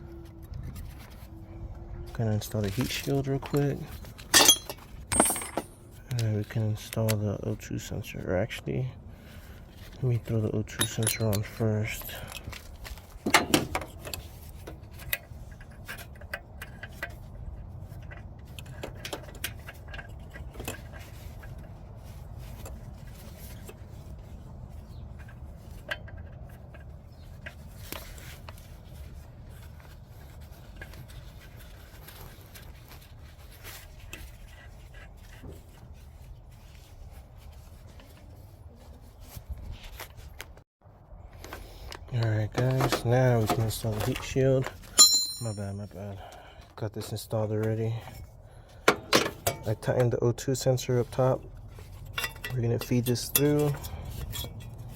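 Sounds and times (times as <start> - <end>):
hand tools clinking and scraping: 2.2 - 7.4, 9.7 - 24.0, 41.4 - 54.9.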